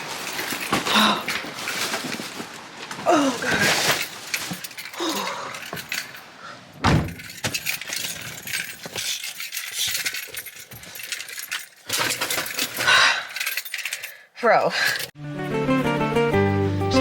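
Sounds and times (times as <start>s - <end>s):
keys jangling and clinking: 0.0s - 2.5s, 3.6s - 15.2s
heavy thump: 6.8s - 7.4s.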